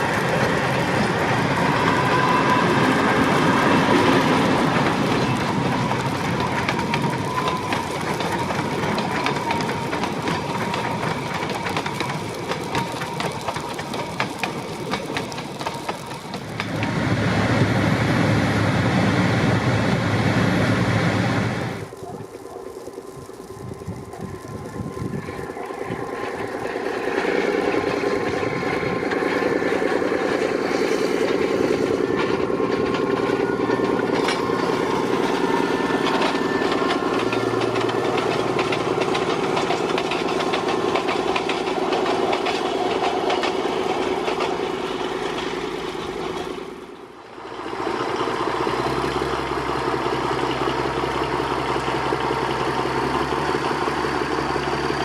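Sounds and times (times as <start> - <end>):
diesel engine humming: 0.0 - 55.0
diesel train running: 0.0 - 55.0.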